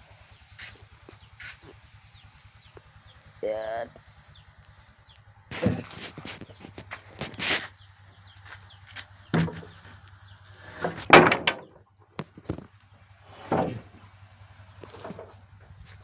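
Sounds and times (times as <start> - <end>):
timber knocking and thudding: 9.3 - 10.0, 10.6 - 12.7, 13.4 - 14.0, 14.8 - 15.4.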